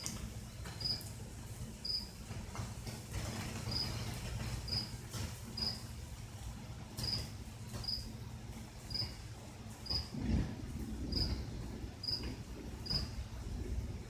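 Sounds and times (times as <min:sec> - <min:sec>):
low steady hum: 0:00.0 - 0:14.0
cricket chirping: 0:00.8 - 0:01.1, 0:01.8 - 0:02.1, 0:04.7 - 0:04.9, 0:05.6 - 0:05.8, 0:07.0 - 0:08.1, 0:08.9 - 0:09.2, 0:09.8 - 0:10.1, 0:11.1 - 0:11.4, 0:12.0 - 0:13.2.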